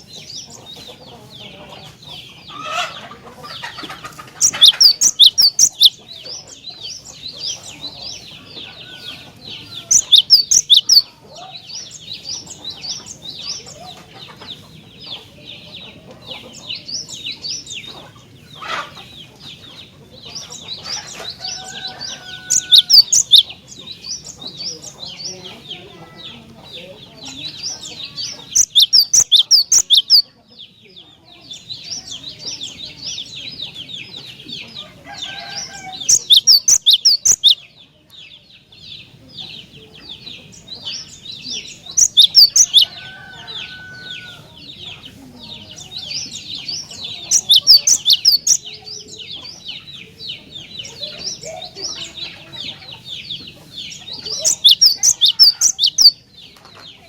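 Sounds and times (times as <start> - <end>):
high chirping and chattering: 0.0 - 57.0.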